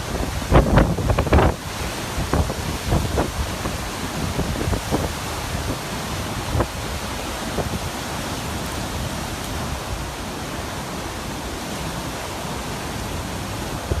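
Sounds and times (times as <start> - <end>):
wind rushing: 0.0 - 8.0
sea surf: 0.0 - 14.0
wind rumble on microphone: 0.0 - 14.0.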